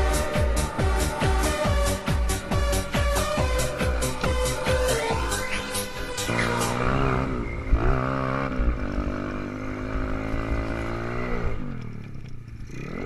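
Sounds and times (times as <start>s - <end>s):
pit bike engine revving: 0.0s - 13.0s.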